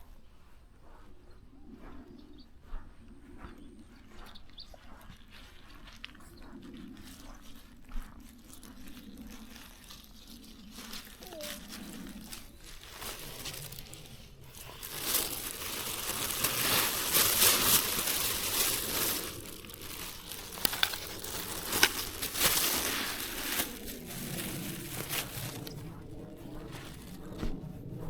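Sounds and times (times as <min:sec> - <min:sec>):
dry rustling and crinkling: 0:06.8 - 0:28.0.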